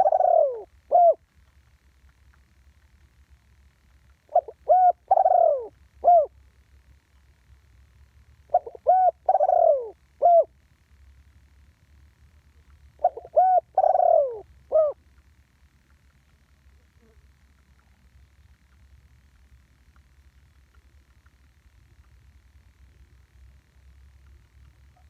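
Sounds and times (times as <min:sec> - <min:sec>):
dove cooing: 0:00.0 - 0:01.3, 0:04.2 - 0:06.4, 0:08.5 - 0:10.5, 0:13.0 - 0:15.0.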